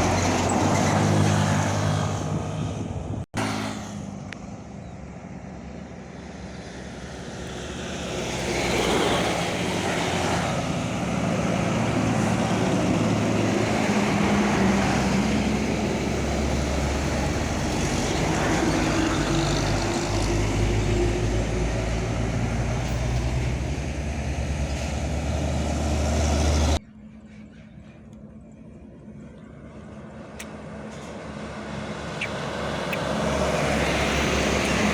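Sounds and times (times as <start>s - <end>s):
truck diesel engine running: 0.0s - 3.7s, 9.2s - 26.8s
tyre and road noise: 0.0s - 28.4s, 29.1s - 34.9s.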